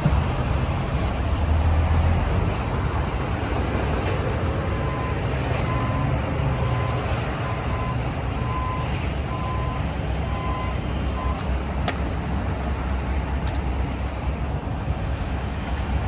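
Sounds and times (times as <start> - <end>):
diesel machinery rumbling: 0.0 - 16.0.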